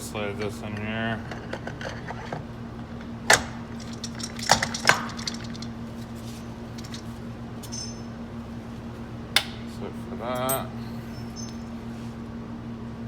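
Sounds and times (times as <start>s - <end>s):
steady low hum: 0.0s - 13.0s
metal parts clinking and knocking: 0.7s - 8.1s.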